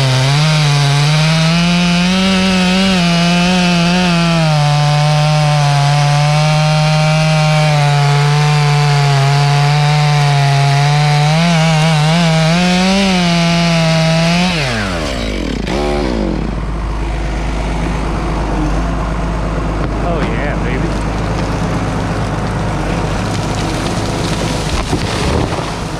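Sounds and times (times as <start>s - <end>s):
chainsaw cutting at full throttle: 0.0s - 18.1s, 22.7s - 25.9s.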